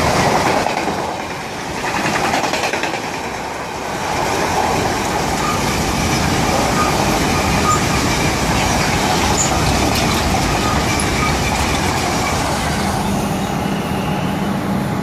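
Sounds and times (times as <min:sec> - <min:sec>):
freight wagons rumbling and clattering: 0:04.2 - 0:13.2
faint high wheel squeals: 0:05.4 - 0:14.7.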